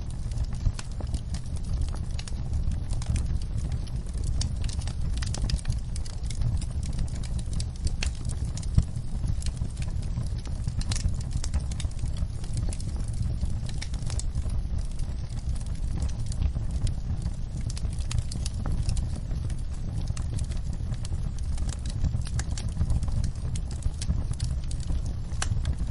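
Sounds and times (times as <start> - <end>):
wood fire crackling: 0.0 - 25.9.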